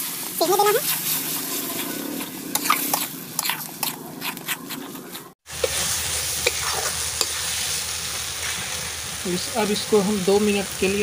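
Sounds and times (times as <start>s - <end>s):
sauce bubbling and sizzling in pan: 5.4s - 11.0s.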